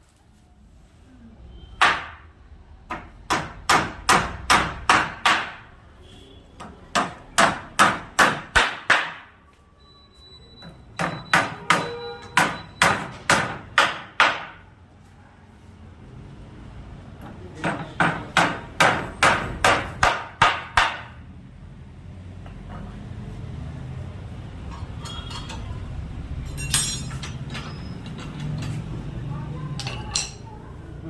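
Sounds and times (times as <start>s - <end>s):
hammer striking wood: 1.8s - 2.2s, 2.9s - 5.7s, 6.6s - 9.3s, 11.0s - 14.7s, 17.6s - 21.2s.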